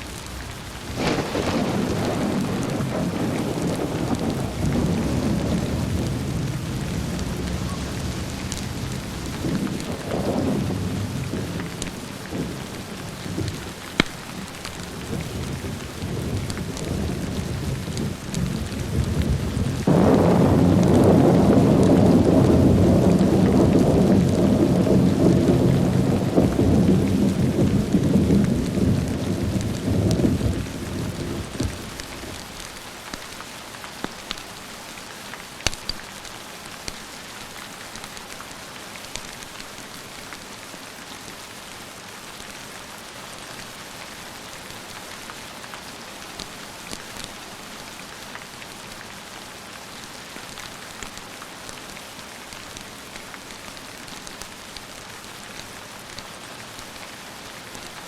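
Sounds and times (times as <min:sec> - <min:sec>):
thunder rumbling: 0:00.0 - 0:32.7
steady rain falling: 0:00.0 - 0:58.0.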